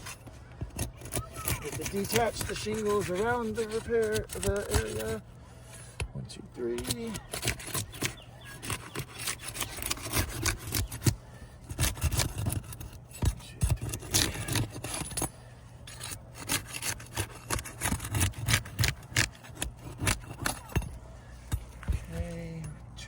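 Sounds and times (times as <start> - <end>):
tool scraping shingles: 0.0 - 22.6.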